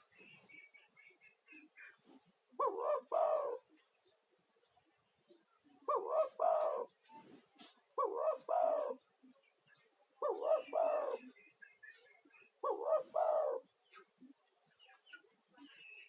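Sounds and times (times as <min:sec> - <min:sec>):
dove cooing: 0:02.5 - 0:03.8, 0:05.8 - 0:07.0, 0:07.6 - 0:09.1, 0:10.2 - 0:11.4, 0:12.6 - 0:14.1.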